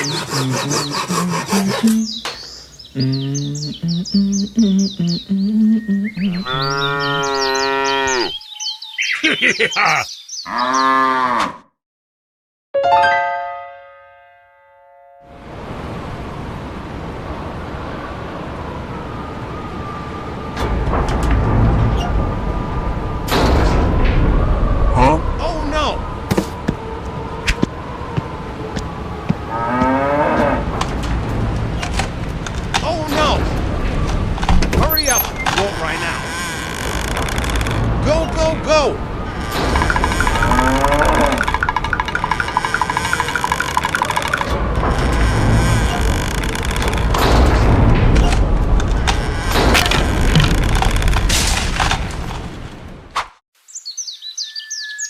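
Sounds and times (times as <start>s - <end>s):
birds chirping: 0.0s - 11.4s, 25.4s - 44.5s, 53.6s - 55.0s
cow mooing: 6.4s - 8.4s, 10.5s - 11.7s, 28.3s - 30.7s, 39.3s - 41.6s
light music: 12.8s - 15.2s.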